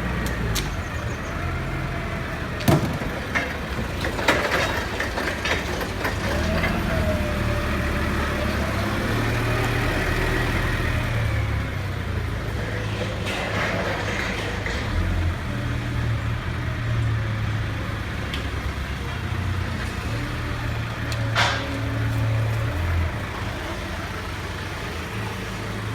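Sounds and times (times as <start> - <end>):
machine engine droning: 0.0 - 25.9
metal clank: 21.2 - 22.1.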